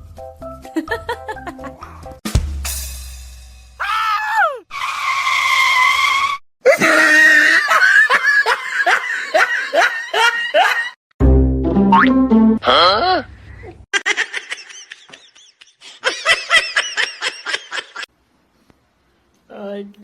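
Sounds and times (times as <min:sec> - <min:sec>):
person screaming: 0:03.8 - 0:04.7, 0:06.7 - 0:07.7
bursts of hard laughter: 0:06.6 - 0:11.0.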